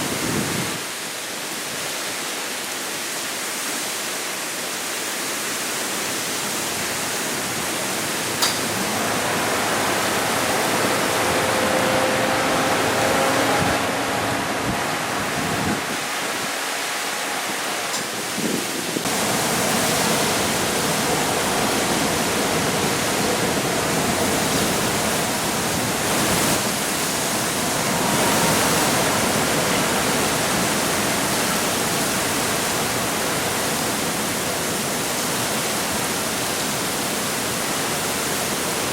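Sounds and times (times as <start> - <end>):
storm wind and rain rushing: 0.0 - 38.9
sharp click: 8.4 - 8.7.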